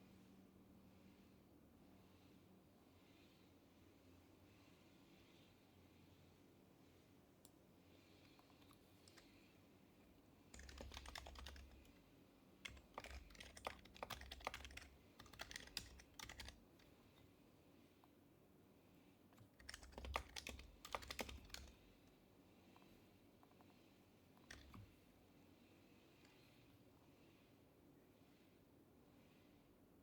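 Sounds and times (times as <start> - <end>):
quiet keyboard typing: 8.2 - 17.3, 19.3 - 25.2.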